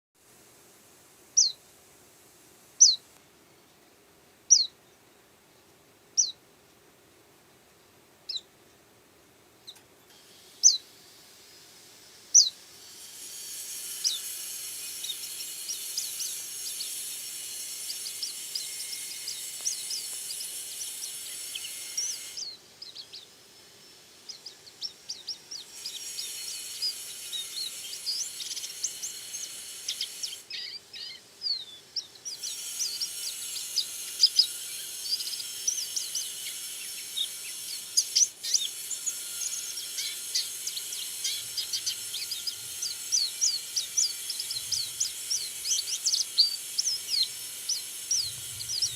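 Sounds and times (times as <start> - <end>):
steady hiss: 0.2 - 4.5, 6.7 - 48.9
rapid high twittering: 12.3 - 31.2, 31.9 - 48.9.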